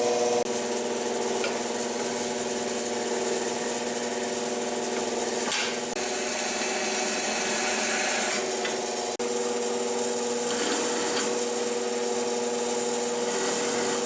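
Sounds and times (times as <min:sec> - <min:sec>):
power tool cutting steel: 0:05.4 - 0:09.2, 0:10.2 - 0:12.0, 0:12.7 - 0:14.0.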